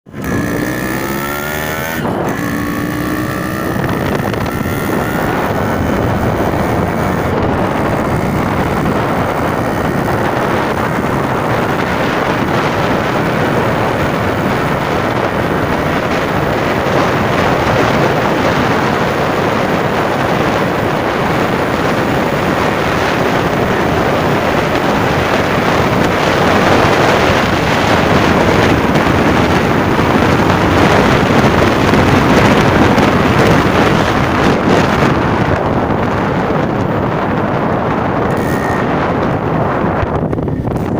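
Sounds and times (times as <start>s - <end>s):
two-stroke engine revving: 0.1s - 40.9s.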